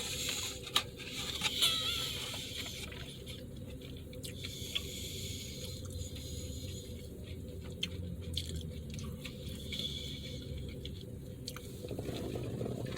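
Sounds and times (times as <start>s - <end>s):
person chewing food: 2.6s - 12.9s.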